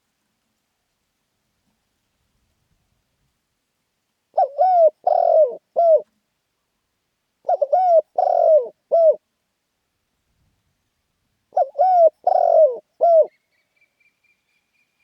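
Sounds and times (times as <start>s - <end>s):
dove cooing: 4.3s - 6.1s, 7.4s - 9.2s, 11.5s - 13.4s.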